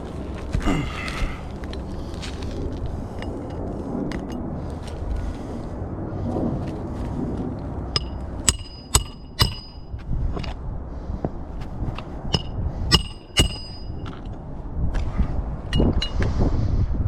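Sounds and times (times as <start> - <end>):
hammer striking metal: 8.0 - 10.0, 12.3 - 14.2.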